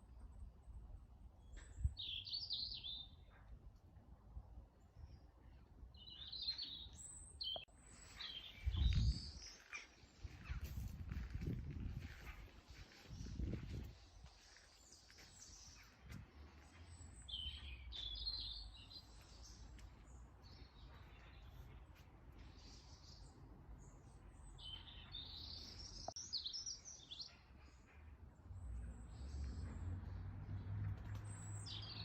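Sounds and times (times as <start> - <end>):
songbird singing faintly: 0.7 - 3.6, 4.8 - 29.7
steady low rumble: 10.2 - 14.6.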